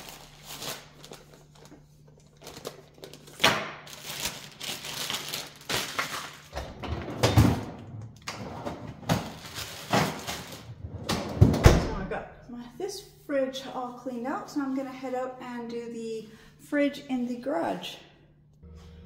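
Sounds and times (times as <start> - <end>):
packages knocking and rustling: 9.0 - 10.7
faint steady hum: 12.0 - 19.0.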